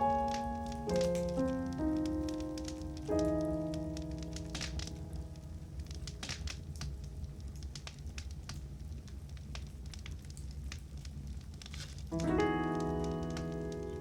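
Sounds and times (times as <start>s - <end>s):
piano chord: 0.0s - 8.8s, 12.1s - 14.0s
wood fire crackling: 0.0s - 14.0s.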